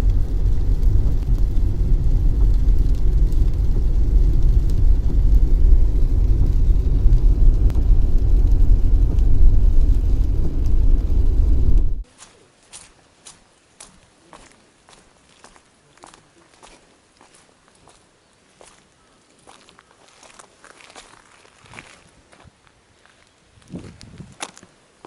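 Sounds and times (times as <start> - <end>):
car road rumble: 0.0 - 12.0.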